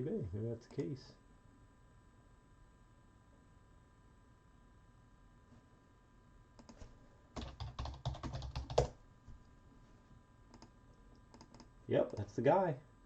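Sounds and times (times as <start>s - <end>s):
computer keyboard typing: 6.6s - 6.8s, 7.4s - 9.0s, 10.5s - 10.7s, 11.3s - 12.3s.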